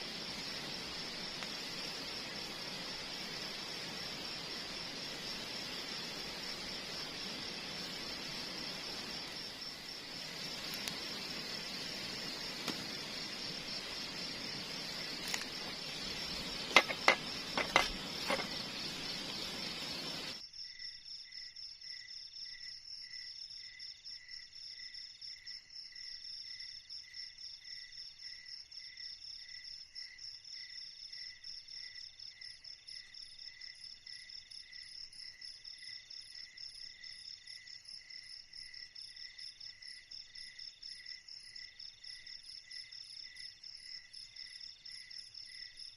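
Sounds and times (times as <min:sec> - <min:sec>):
broad hiss: 0:00.0 - 0:20.4
insects chirping: 0:00.0 - 0:45.9.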